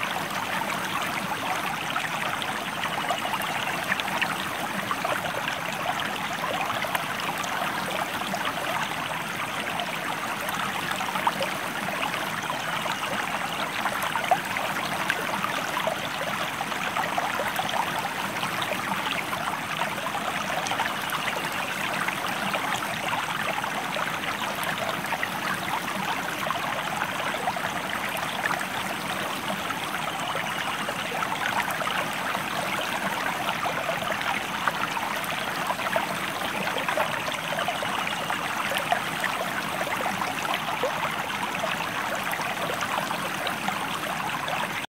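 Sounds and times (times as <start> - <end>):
stream water flowing: 0.0 - 44.9.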